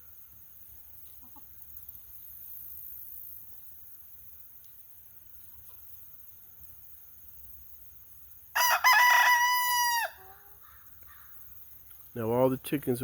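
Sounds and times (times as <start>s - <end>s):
rooster crowing: 8.6s - 10.4s.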